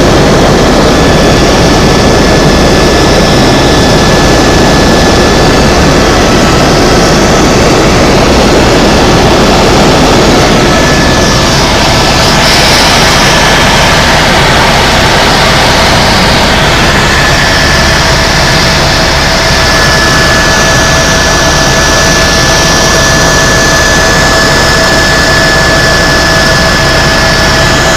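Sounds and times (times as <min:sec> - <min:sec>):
helicopter engine and rotor: 0:00.0 - 0:27.9.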